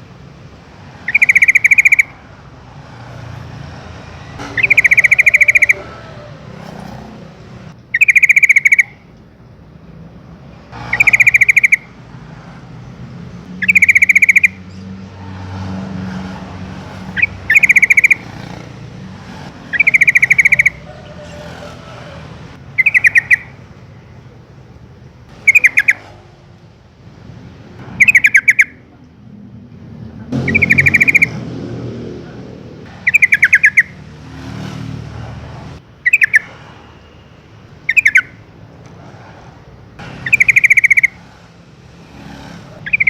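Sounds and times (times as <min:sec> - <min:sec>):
bird calling with bubbling notes: 0:01.0 - 0:02.2, 0:04.4 - 0:06.2, 0:07.9 - 0:09.0, 0:10.9 - 0:11.9, 0:13.6 - 0:14.6, 0:17.2 - 0:18.6, 0:19.6 - 0:21.4, 0:22.8 - 0:23.6, 0:25.4 - 0:26.2, 0:28.0 - 0:28.8, 0:33.0 - 0:34.0, 0:36.0 - 0:36.5, 0:37.8 - 0:38.4, 0:40.2 - 0:41.2.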